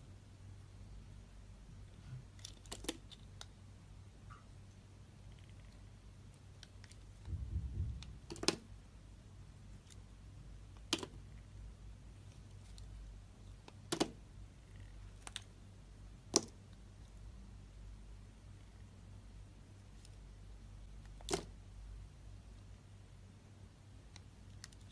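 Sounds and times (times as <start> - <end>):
low rumble of handling: 7.0 - 8.4.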